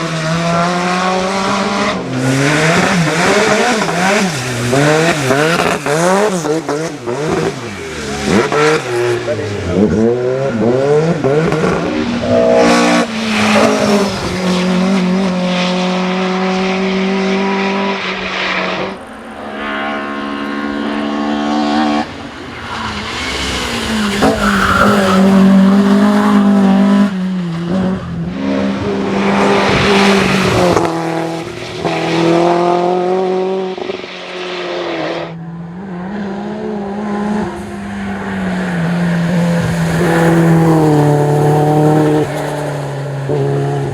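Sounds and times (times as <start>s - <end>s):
race car engines at high revs: 0.0s - 43.9s
tyre squeal: 22.5s - 26.0s.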